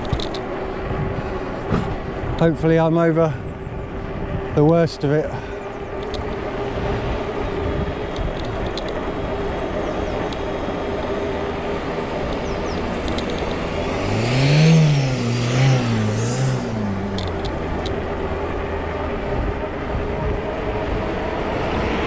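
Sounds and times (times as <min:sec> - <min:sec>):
tyre and wind noise: 0:00.0 - 0:02.8, 0:05.8 - 0:22.0
electric motor whining: 0:10.3 - 0:18.3.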